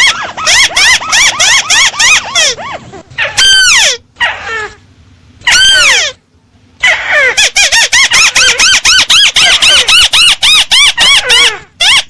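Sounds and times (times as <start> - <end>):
crake squealing call: 0.0 - 4.6, 5.5 - 6.2.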